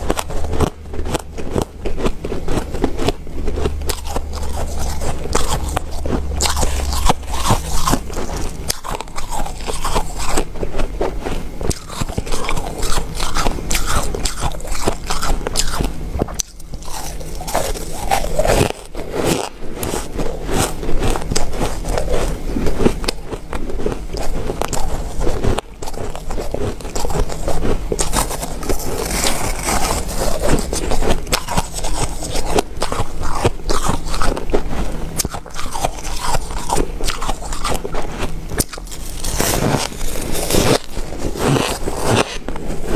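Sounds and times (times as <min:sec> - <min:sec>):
ice being crunched: 0:28.0 - 0:34.3, 0:38.6 - 0:42.9.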